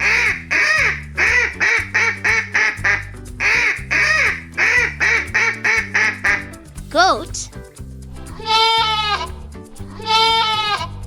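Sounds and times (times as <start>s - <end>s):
duck quacking: 0.0s - 6.6s
background music: 0.0s - 11.0s.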